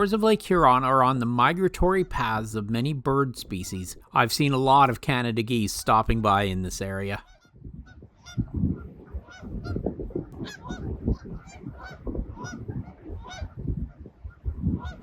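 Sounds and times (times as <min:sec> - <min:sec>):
low rumble: 0:07.6 - 0:15.0
geese honking: 0:09.2 - 0:09.8, 0:10.4 - 0:13.6.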